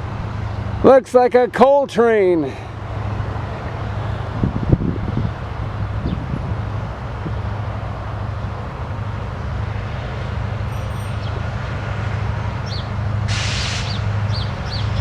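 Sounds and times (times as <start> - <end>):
locomotive engine droning: 0.0 - 15.0
rail noise: 0.0 - 15.0
short burst of hiss: 13.3 - 14.1.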